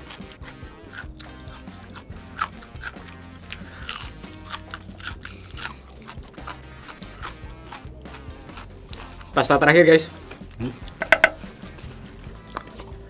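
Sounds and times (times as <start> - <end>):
background music with bass: 0.0 - 13.0
crunchy chewing of fried chicken: 0.0 - 13.0.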